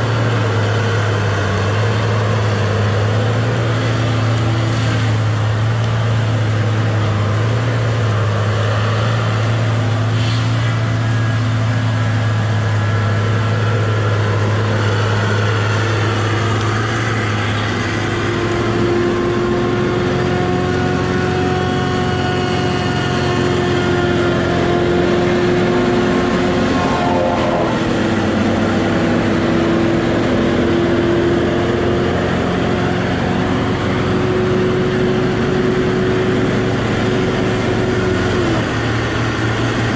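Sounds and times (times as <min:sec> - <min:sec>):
diesel engine running: 0:00.0 - 0:39.9
higher machine whine: 0:00.0 - 0:39.9.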